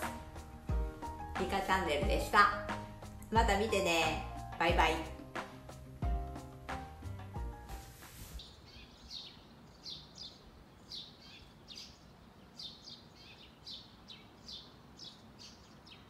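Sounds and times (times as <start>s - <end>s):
small birds chirping: 8.4s - 16.0s.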